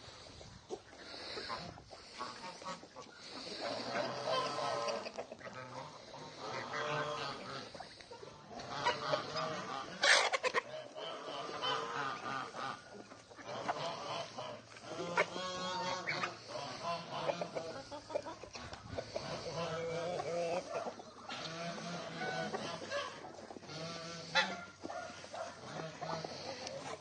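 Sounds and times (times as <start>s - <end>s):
poultry calling: 0.0s - 27.0s
goose-like honks: 11.0s - 12.8s, 21.3s - 24.8s.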